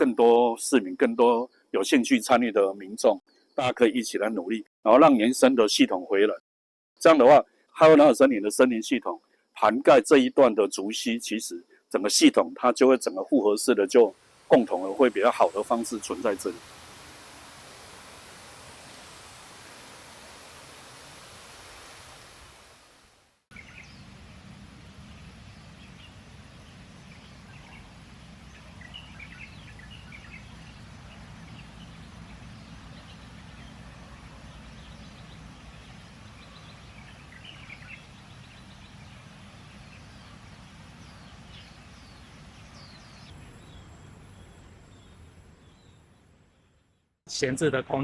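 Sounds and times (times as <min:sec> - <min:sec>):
high-pitched hiss: 0:13.6 - 0:30.9.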